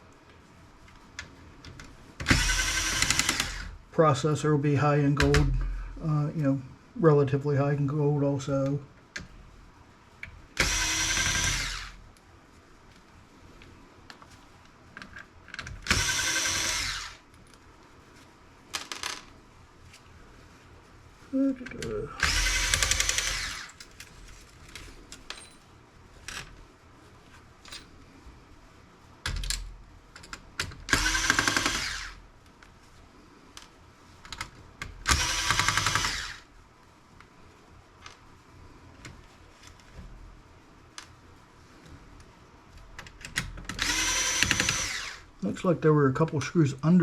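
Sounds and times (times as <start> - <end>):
electric screwdriver whirring: 2.2 - 3.7, 10.6 - 12.0, 15.8 - 17.2, 22.2 - 23.7, 30.9 - 32.2, 35.1 - 36.5, 43.7 - 45.3.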